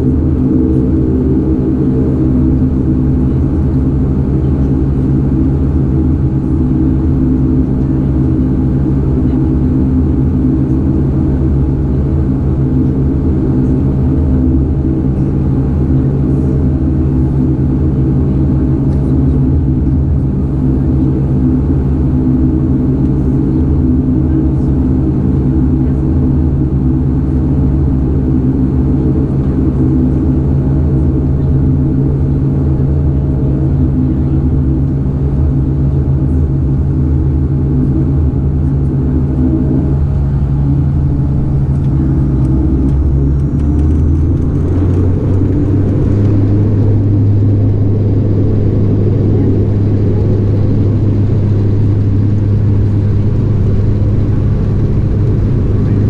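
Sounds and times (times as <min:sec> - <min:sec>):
turboprop cabin drone: 0:00.0 - 0:56.0.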